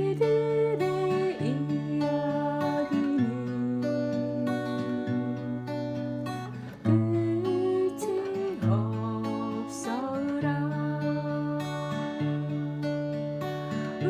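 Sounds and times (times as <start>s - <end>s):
sliding guitar melody: 0.0s - 14.0s
strummed acoustic guitar: 0.0s - 14.0s.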